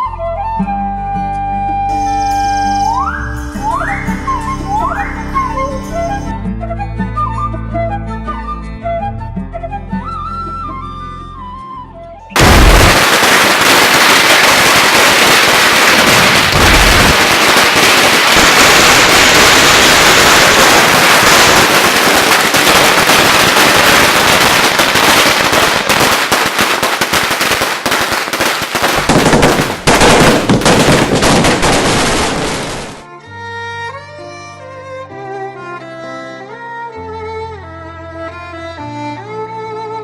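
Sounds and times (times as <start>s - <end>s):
dense crackling with sharp pops: 12.4s - 33.0s.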